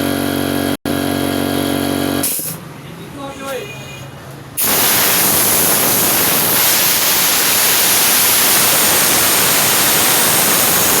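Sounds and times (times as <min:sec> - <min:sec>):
air compressor hissing: 0:01.9 - 0:02.6, 0:04.6 - 0:11.0.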